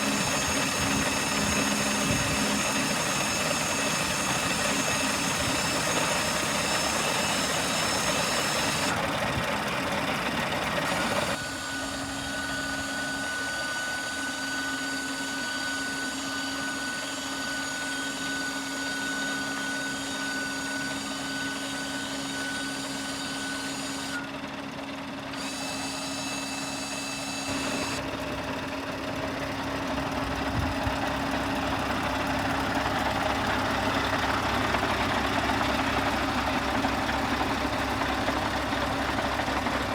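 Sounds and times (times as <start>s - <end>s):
engine running: 0.0s - 14.8s, 23.6s - 39.9s.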